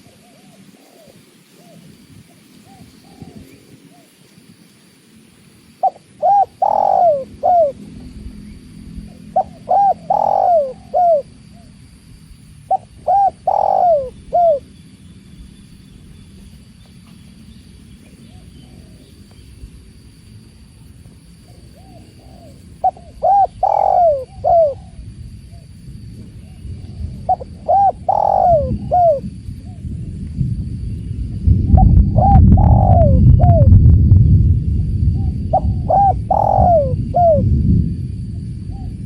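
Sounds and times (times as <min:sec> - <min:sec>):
dove cooing: 0:00.0 - 0:04.2, 0:05.8 - 0:11.8, 0:12.6 - 0:14.7, 0:21.4 - 0:29.9, 0:31.7 - 0:33.8, 0:35.2 - 0:37.6.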